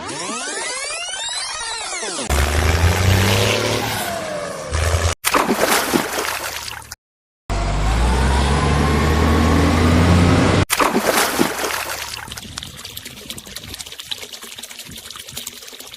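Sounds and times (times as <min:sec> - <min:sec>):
heavy vehicle engine running: 0:07.5 - 0:10.7.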